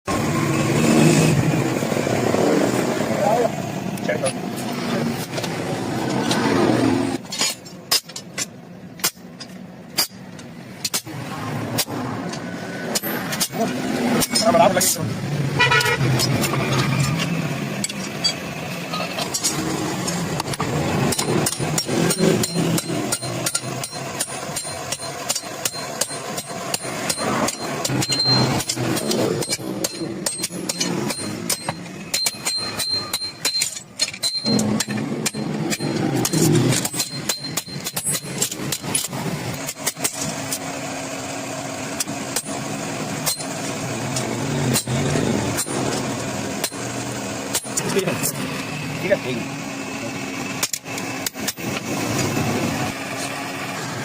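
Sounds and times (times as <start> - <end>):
hammer striking iron: 7.4 - 10.2, 19.3 - 40.2, 42.3 - 42.6, 43.2 - 43.6.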